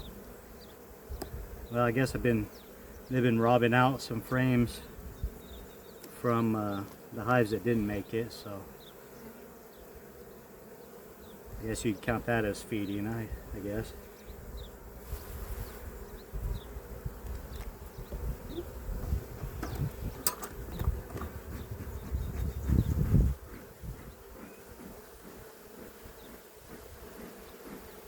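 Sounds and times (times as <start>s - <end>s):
bees buzzing: 0.0s - 28.0s
sharp click: 19.6s - 20.9s.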